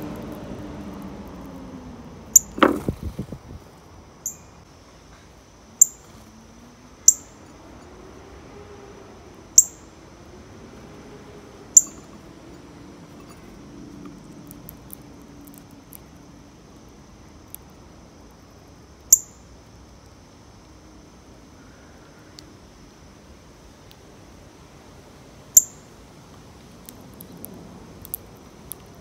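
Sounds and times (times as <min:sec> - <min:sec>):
rattling knocks: 0:02.6 - 0:03.0
bird chip notes: 0:11.7 - 0:12.1.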